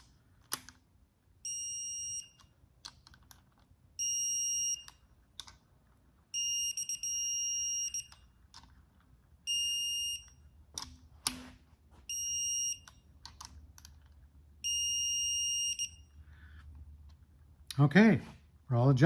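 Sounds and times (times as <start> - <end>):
torque wrench beeping: 1.4 - 2.5, 4.0 - 5.1, 6.3 - 8.3, 9.5 - 10.5, 12.1 - 13.1, 14.6 - 16.2.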